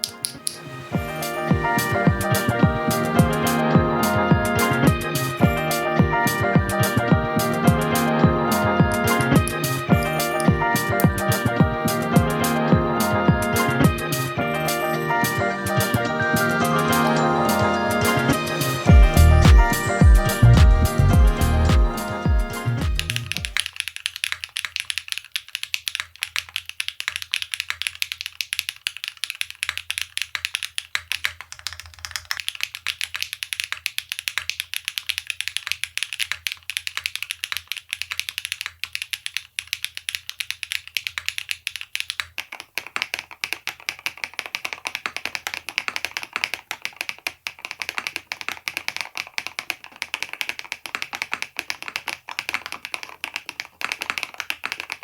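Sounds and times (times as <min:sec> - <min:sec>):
mechanical keyboard typing: 0:23.0 - 0:55.0.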